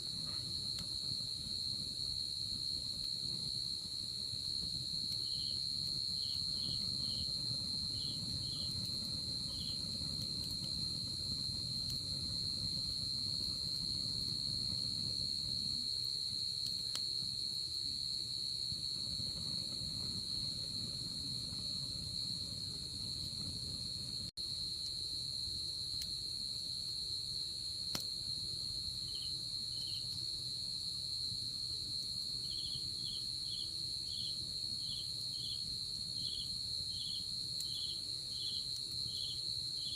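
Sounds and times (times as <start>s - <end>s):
campfire crackles: 0.0s - 39.9s.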